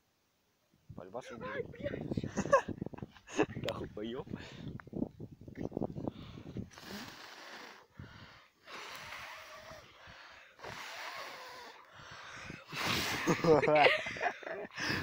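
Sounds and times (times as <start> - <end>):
person blowing on embers: 5.9 - 13.6.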